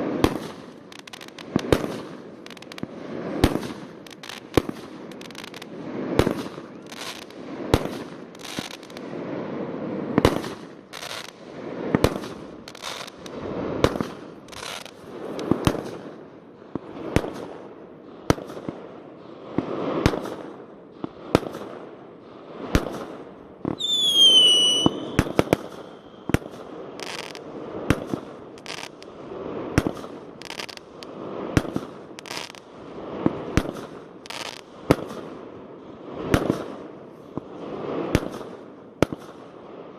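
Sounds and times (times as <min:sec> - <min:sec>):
fireworks bangs with echo: 0:00.0 - 0:39.9
firework falling whistle: 0:23.7 - 0:27.4.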